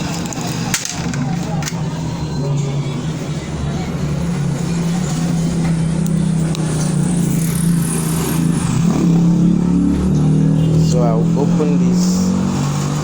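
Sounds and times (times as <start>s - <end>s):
engine droning hum: 0.0s - 13.0s.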